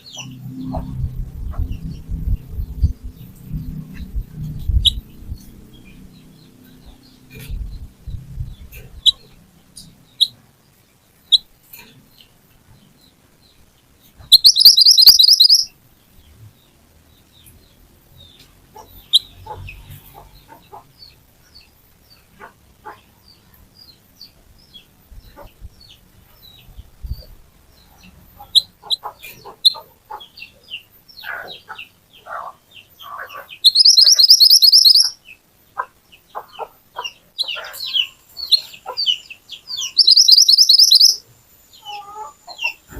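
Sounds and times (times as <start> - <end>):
bird chirping: 0.0 - 42.9
bird fast high trill: 14.3 - 15.7, 33.7 - 35.2, 39.7 - 41.2.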